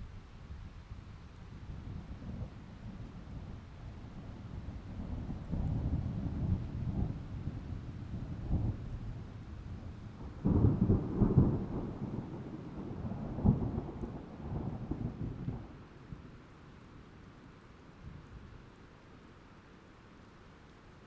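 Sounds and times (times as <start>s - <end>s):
rain falling: 0.0s - 21.0s
thunder rumbling: 10.3s - 15.8s.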